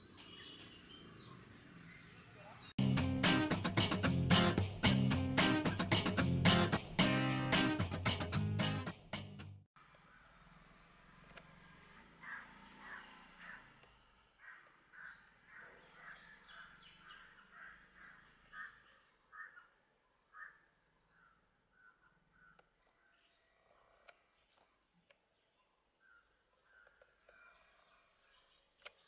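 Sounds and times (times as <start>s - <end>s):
faint bird calls: 11.9s - 24.7s, 25.6s - 29.0s.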